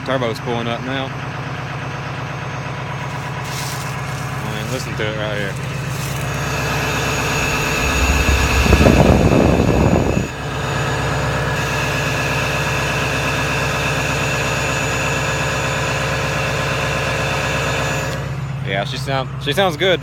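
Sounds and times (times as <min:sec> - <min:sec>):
diesel engine idling: 0:00.0 - 0:20.0
rush of noise: 0:05.5 - 0:11.6.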